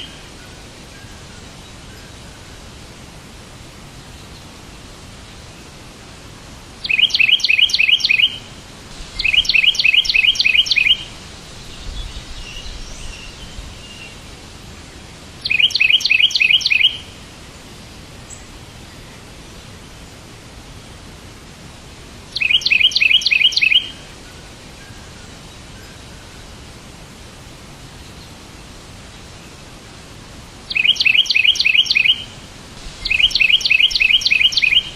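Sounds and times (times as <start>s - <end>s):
songbird chirping: 0.0s - 2.8s, 6.8s - 20.6s, 21.8s - 26.7s, 27.4s - 34.9s
steady background hiss: 0.0s - 34.9s
faint twittering: 9.1s - 14.0s, 32.9s - 34.9s.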